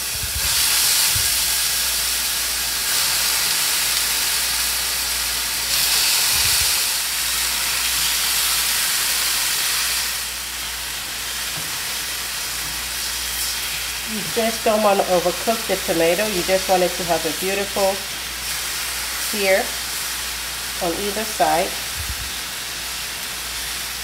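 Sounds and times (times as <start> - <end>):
steam hissing: 0.0 - 24.0
tomato slices sizzling in a pan: 0.0 - 24.0.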